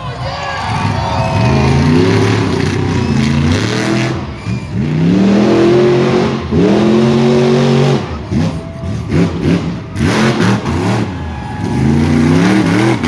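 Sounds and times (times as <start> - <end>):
truck engine revving: 0.6 - 13.0.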